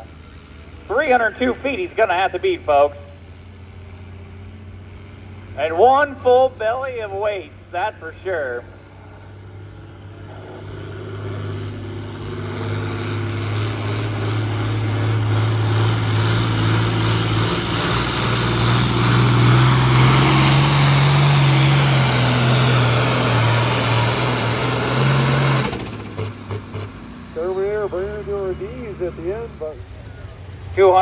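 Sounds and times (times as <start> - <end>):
diesel engine under load: 0.0 - 29.9
turbo whine: 7.9 - 29.8.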